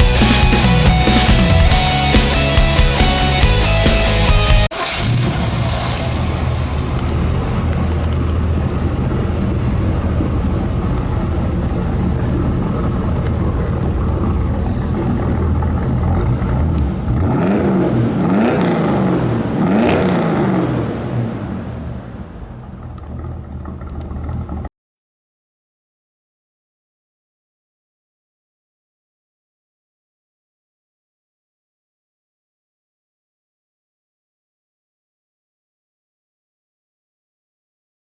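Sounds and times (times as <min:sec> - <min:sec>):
car engine idling: 0:00.0 - 0:24.7
car engine revving: 0:00.0 - 0:24.7.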